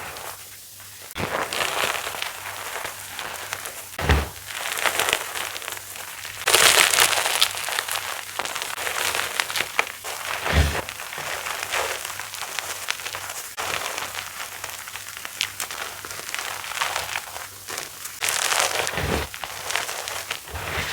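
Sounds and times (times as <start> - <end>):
chalk crunching: 0.0 - 20.9
dull thumps: 4.0 - 4.5, 10.4 - 11.0.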